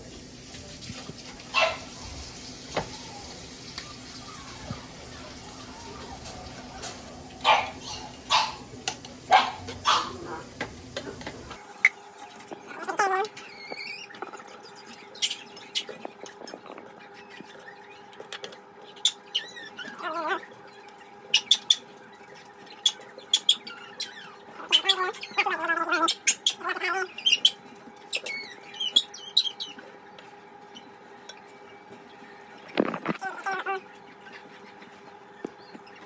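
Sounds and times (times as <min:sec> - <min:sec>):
dogs whining and whimpering: 0:01.6 - 0:08.6, 0:12.7 - 0:30.0, 0:32.6 - 0:36.0.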